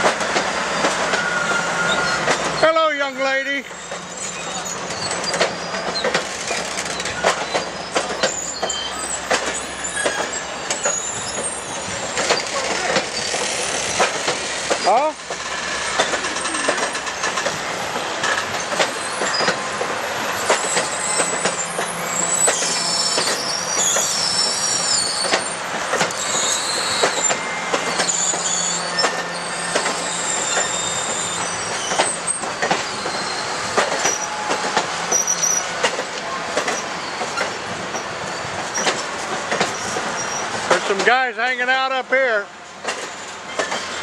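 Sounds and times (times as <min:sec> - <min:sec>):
train wheels clacking over rail joints: 0:00.0 - 0:02.9, 0:03.5 - 0:42.1, 0:42.8 - 0:44.0
high-pitched wheel squeal: 0:00.5 - 0:02.7, 0:03.6 - 0:14.0, 0:20.5 - 0:35.8.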